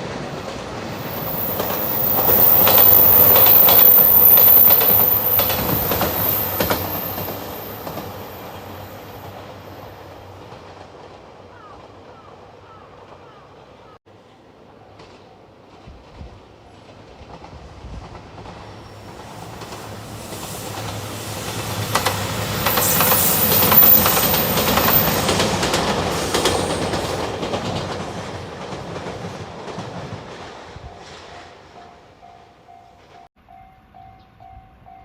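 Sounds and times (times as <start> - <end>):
train rumble passing: 0.0 - 35.0
wheels clattering over rail joints: 17.2 - 31.5.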